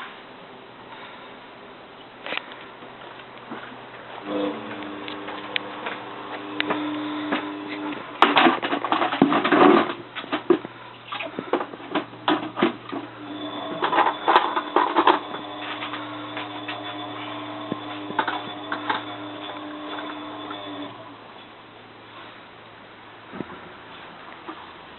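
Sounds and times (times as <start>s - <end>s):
washing machine humming: 3.5s - 22.1s.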